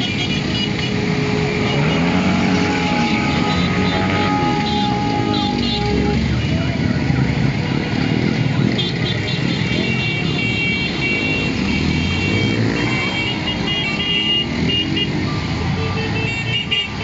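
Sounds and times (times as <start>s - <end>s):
horn blasts: 0.0s - 6.8s
motorcycle engines running: 0.0s - 17.0s.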